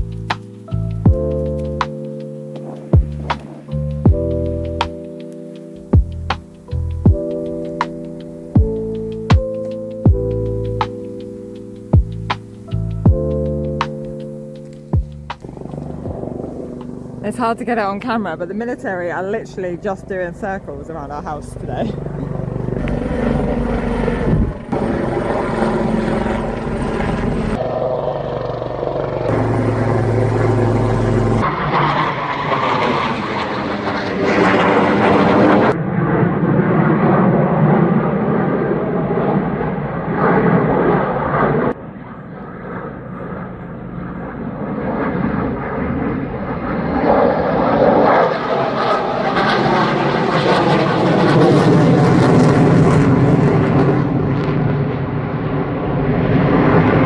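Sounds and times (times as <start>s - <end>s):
aircraft engine drone: 0.0s - 57.0s.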